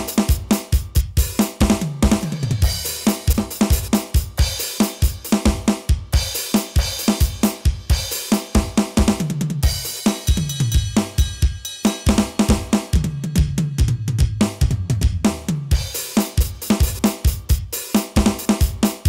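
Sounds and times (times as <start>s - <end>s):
bass drum: 0.0s - 8.0s, 8.6s - 19.0s
snare drum: 0.0s - 13.6s, 14.4s - 19.0s.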